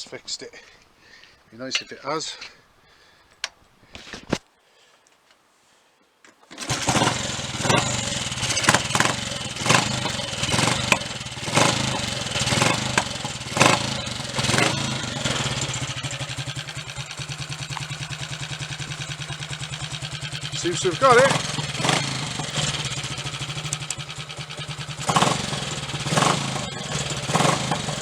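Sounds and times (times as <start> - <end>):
motorcycle engine revving and idling: 6.6 - 28.0.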